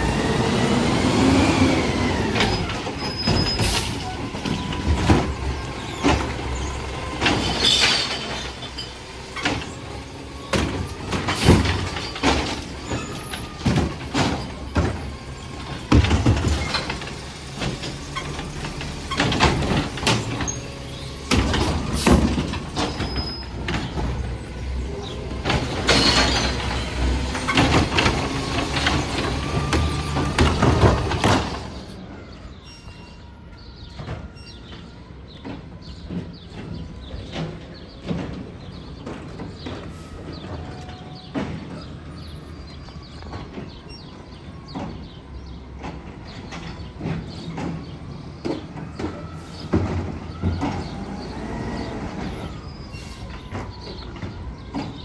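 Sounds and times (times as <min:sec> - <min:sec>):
bangs and clatter of carts: 0:00.0 - 0:32.1, 0:33.8 - 0:55.0
garbage truck engine running: 0:00.0 - 0:32.6, 0:33.2 - 0:55.0
hydraulic whine: 0:00.0 - 0:38.3.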